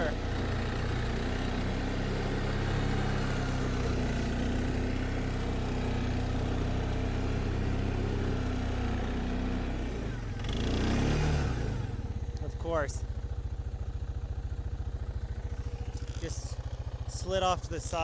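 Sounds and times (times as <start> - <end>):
off-road vehicle engine straining: 0.0 - 18.0.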